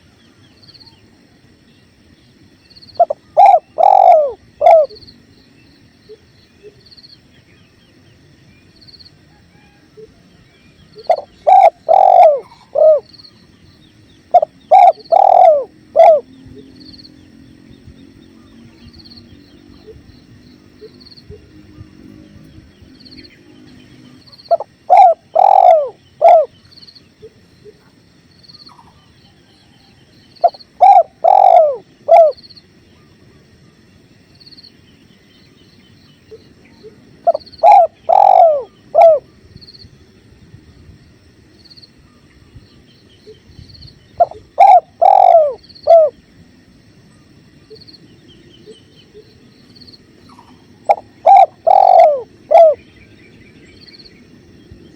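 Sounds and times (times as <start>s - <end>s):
dove cooing: 3.0s - 5.1s, 10.9s - 13.3s, 14.2s - 16.7s, 24.0s - 28.0s, 30.4s - 32.4s, 36.3s - 39.4s, 44.2s - 46.2s, 50.2s - 52.9s.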